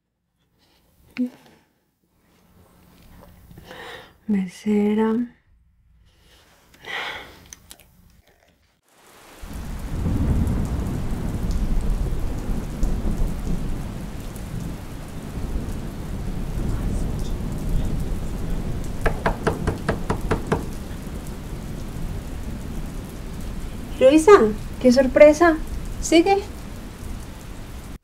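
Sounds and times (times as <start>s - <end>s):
low rumble: 5.3s - 6.7s
heavy rain: 8.8s - 28.0s
knocks on a door: 19.0s - 20.8s.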